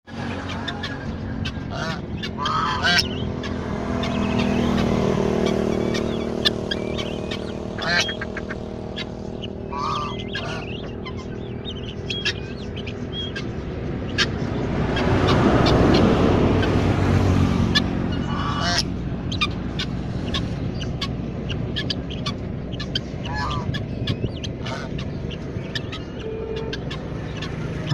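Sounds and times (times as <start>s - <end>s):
ducks quacking: 0.1s - 27.9s
farm birds calling: 0.1s - 27.9s
steady low hum: 0.2s - 15.3s.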